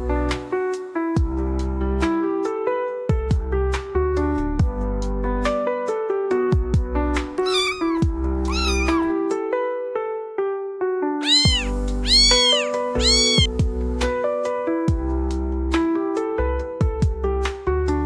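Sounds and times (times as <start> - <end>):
gentle piano music: 0.0 - 18.0
kitten meowing: 7.4 - 9.1, 11.2 - 13.5.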